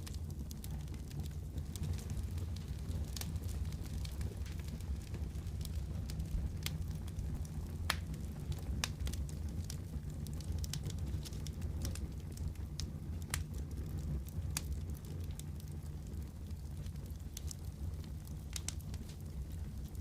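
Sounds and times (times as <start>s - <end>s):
low rumble of flames: 0.0s - 20.0s
wood fire crackles and pops: 0.0s - 20.0s.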